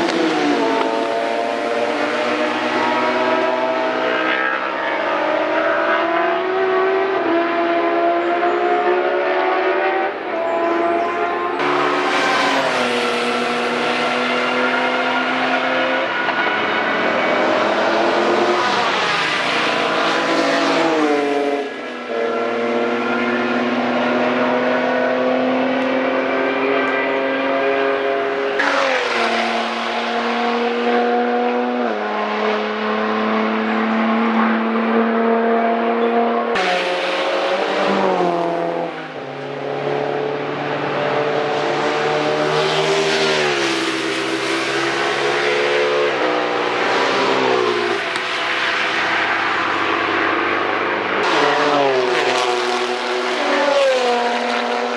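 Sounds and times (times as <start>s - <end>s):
race vehicles engines at high revs: 0.0s - 54.9s.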